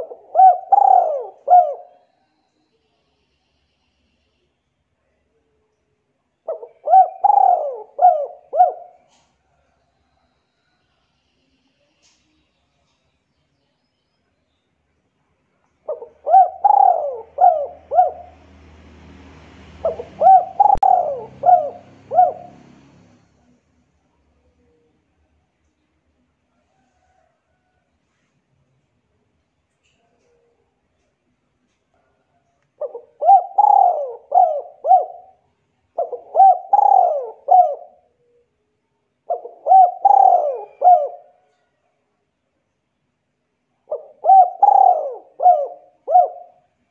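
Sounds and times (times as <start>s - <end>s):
bird cooing: 0.0s - 2.4s, 6.4s - 10.8s, 15.8s - 19.0s, 19.8s - 25.3s, 32.0s - 41.8s, 43.8s - 46.8s
bird whistling call: 20.2s - 22.5s.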